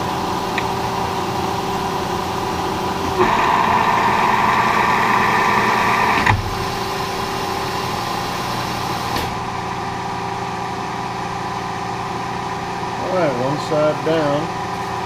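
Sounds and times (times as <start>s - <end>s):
machine humming: 0.0s - 15.0s
milling machine cutting metal: 1.8s - 9.2s.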